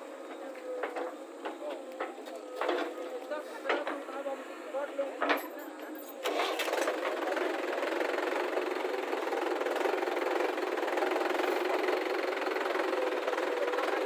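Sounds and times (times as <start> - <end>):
diesel engine humming: 6.3 - 14.0.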